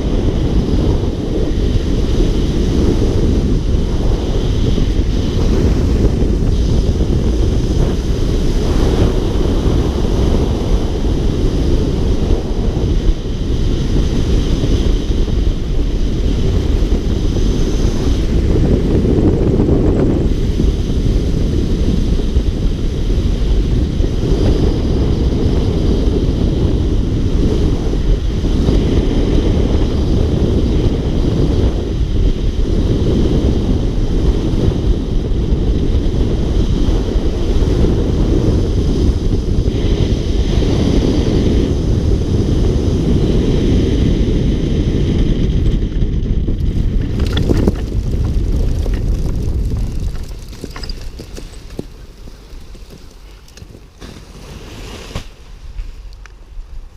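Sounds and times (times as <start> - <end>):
heavy wind buffeting microphone: 0.0 - 56.9.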